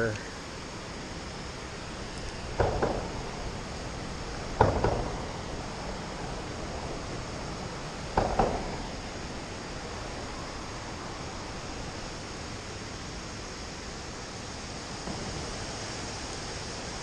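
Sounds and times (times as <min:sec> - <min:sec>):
creek water rushing: 0:00.0 - 0:17.0
double knocks: 0:02.5 - 0:03.3, 0:04.6 - 0:05.3, 0:08.1 - 0:08.9.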